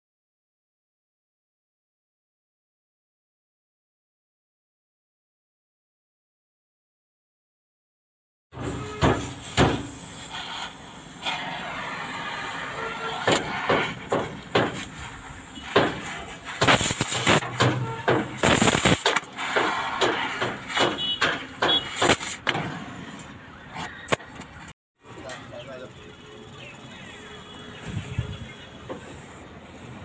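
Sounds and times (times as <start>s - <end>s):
hammer on sheet metal: 8.6s - 9.9s, 13.2s - 14.9s, 15.7s - 22.7s.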